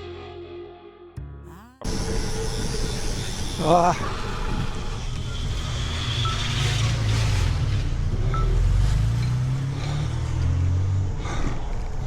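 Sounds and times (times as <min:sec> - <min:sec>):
car engine humming: 0:01.8 - 0:12.0
wind and road noise: 0:03.2 - 0:12.0.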